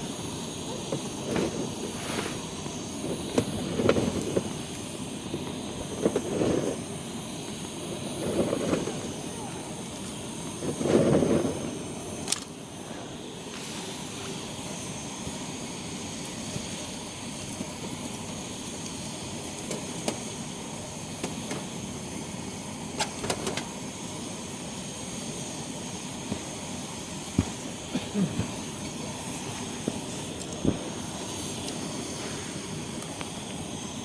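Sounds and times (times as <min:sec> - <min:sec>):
rush of air: 0:00.0 - 0:15.2, 0:28.2 - 0:34.0
campfire hissing: 0:00.0 - 0:34.0
fire crackling pops: 0:00.0 - 0:34.0.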